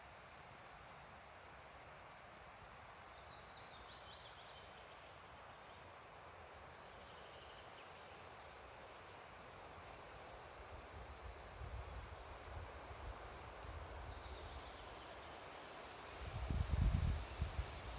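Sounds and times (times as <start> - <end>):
wind in the trees: 6.8 - 17.9.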